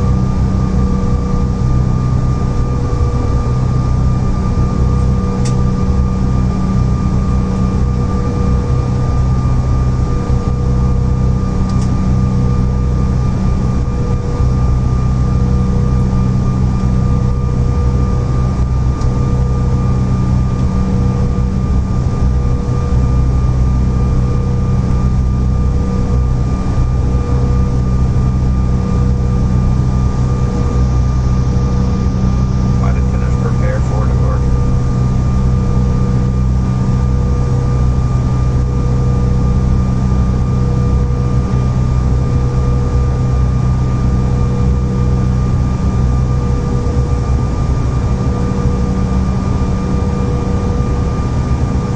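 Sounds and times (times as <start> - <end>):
jet engine cabin drone: 0.0 - 51.9.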